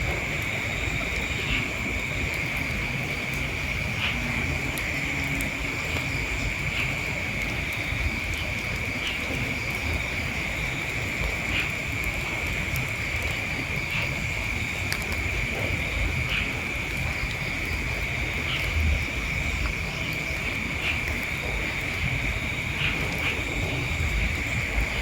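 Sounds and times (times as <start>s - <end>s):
faint insect chirp: 0.0s - 25.0s
insect drone: 0.0s - 25.0s
wind on microphone: 0.0s - 25.0s.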